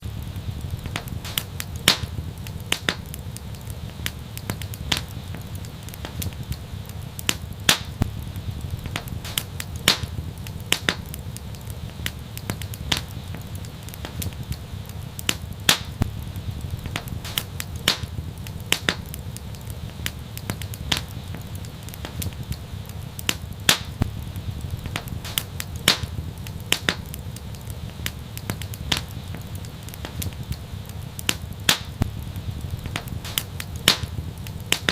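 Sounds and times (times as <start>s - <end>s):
low fire rumble: 0.0s - 34.9s
wood fire crackling: 0.0s - 34.9s.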